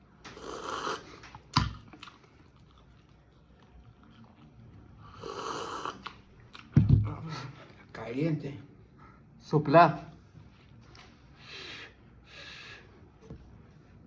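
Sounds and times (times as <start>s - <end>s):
person eating noisily: 0.2s - 6.7s
hissy mouth sounds: 0.3s - 1.4s, 5.1s - 6.2s.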